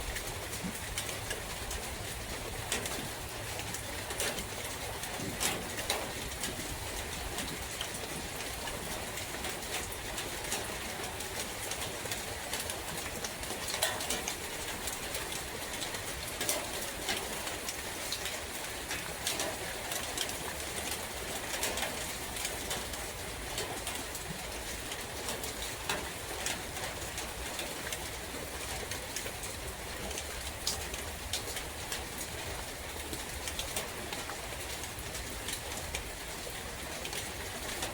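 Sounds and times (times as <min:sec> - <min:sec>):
rain pattering in forest: 0:00.0 - 0:37.9.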